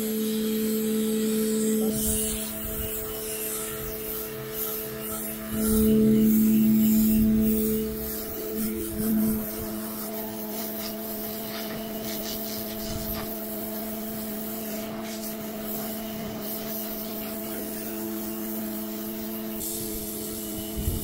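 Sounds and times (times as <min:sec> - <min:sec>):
water jet hissing on patio: 0:00.6 - 0:21.0
pressure washer motor humming: 0:01.5 - 0:21.0.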